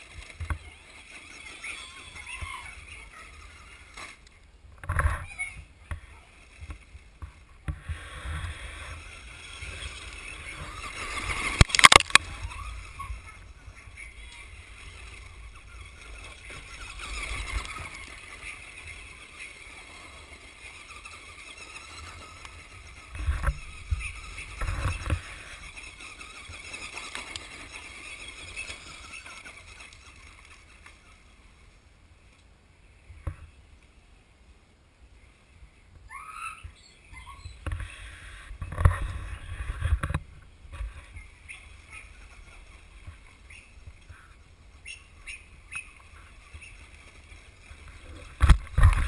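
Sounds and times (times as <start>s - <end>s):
toy truck motor whine: 0.0s - 4.2s, 7.8s - 31.3s.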